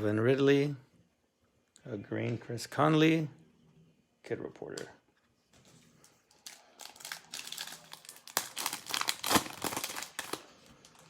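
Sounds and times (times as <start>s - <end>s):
wrapper torn and crinkled: 6.4s - 11.0s.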